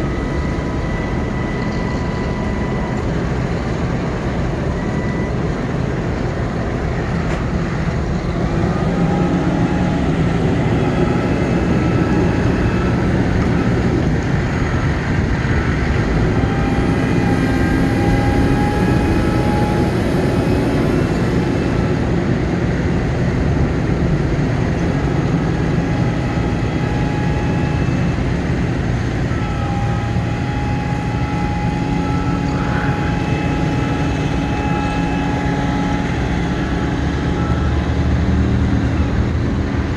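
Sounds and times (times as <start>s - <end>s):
hydraulic whining: 0.0s - 39.9s
truck engine running: 0.0s - 39.9s.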